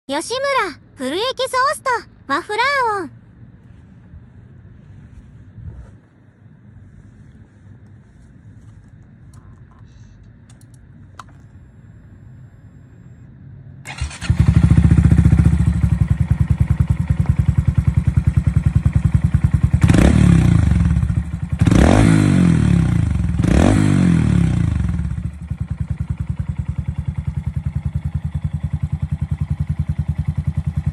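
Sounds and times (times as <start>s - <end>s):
faint clicks: 9.0s - 11.5s
motorcycle engine idling and revving: 13.4s - 30.9s.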